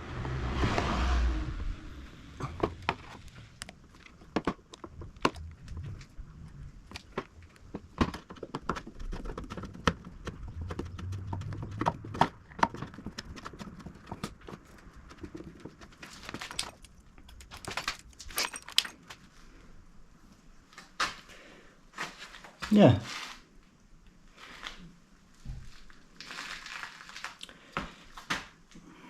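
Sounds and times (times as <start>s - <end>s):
tools clicking and clattering: 15.2s - 19.2s.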